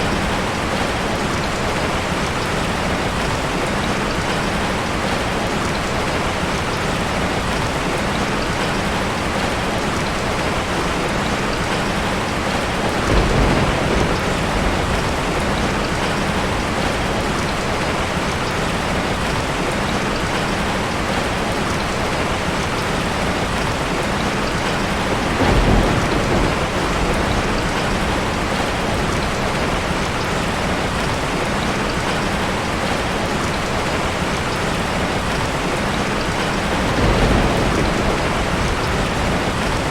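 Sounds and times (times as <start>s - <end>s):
rain pattering on a surface: 0.0s - 39.9s
low rumbles of thunder: 8.2s - 19.9s, 22.1s - 32.1s, 34.5s - 39.9s.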